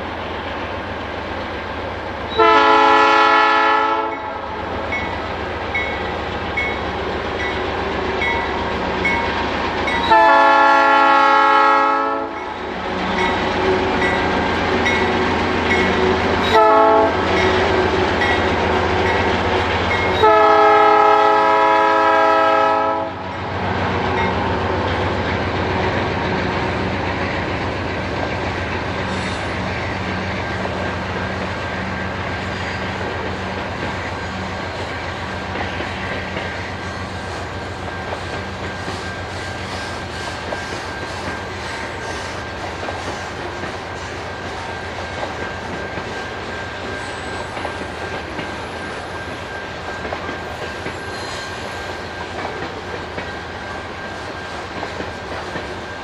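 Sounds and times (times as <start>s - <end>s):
locomotive air horn: 2.4s - 4.5s, 10.1s - 12.4s, 16.4s - 17.4s, 20.1s - 23.3s.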